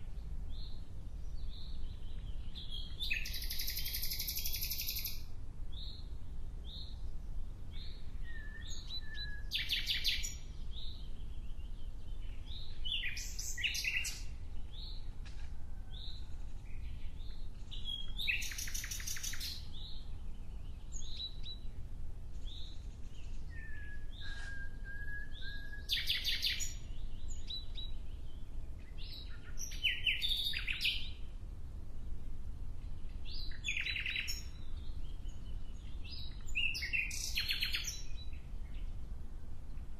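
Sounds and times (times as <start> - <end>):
birds chirping and whistling: 1.4 - 5.2, 7.8 - 11.1, 17.8 - 20.0, 22.5 - 27.9, 29.0 - 31.0, 33.3 - 38.8.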